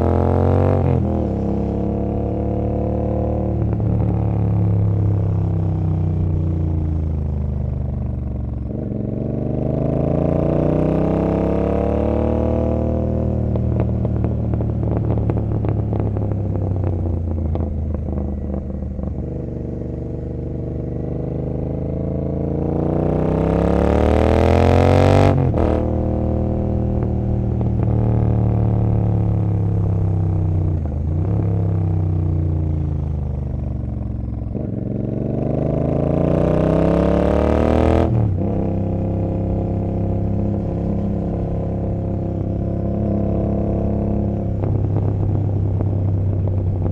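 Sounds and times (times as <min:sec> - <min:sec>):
motorcycle engine revving: 0:00.0 - 0:46.9
exhaust crackling and popping: 0:13.5 - 0:19.3, 0:26.8 - 0:28.4, 0:44.3 - 0:46.9.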